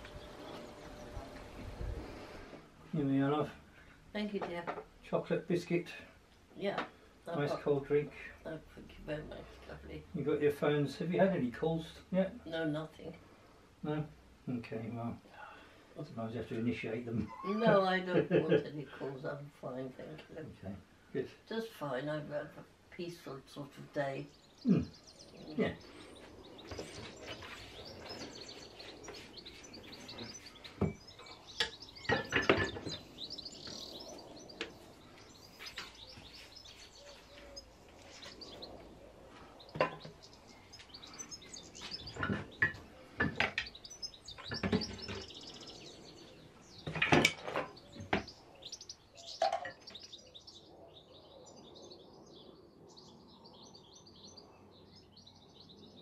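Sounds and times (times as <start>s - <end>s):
small birds chirping: 0.0s - 56.0s
knocks and clatters: 31.6s - 33.2s, 41.8s - 43.8s, 44.4s - 45.4s, 46.8s - 48.4s.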